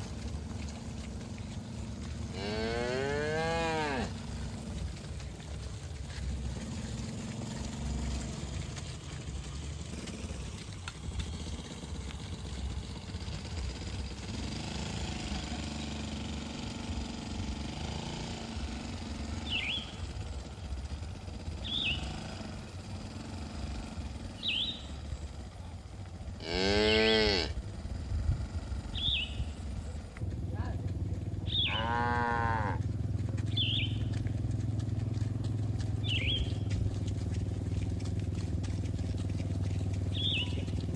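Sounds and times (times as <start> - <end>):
cattle mooing: 2.2 - 4.6, 26.4 - 27.6, 31.5 - 32.8
steady low rumble: 3.7 - 14.4, 27.5 - 31.8, 32.5 - 40.9
bird chirps: 19.4 - 20.1, 21.6 - 22.1, 24.4 - 25.0, 28.9 - 29.6, 31.4 - 31.9, 33.5 - 34.2, 36.0 - 36.8, 39.4 - 40.9.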